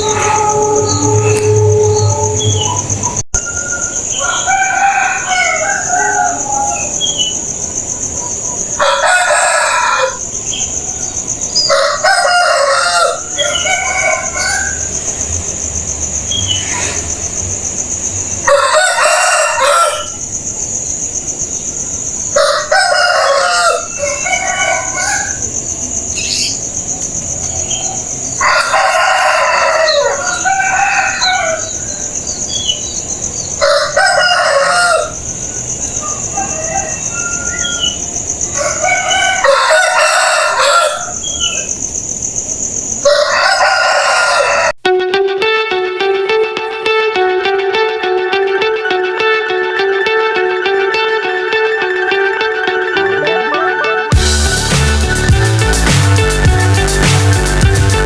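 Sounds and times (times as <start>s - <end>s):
steady high whine: 0.0s - 4.1s, 48.1s - 58.0s
chickens clucking: 0.0s - 20.2s, 22.3s - 41.8s
roosters crowing: 0.0s - 21.1s, 21.7s - 42.2s, 42.9s - 44.8s.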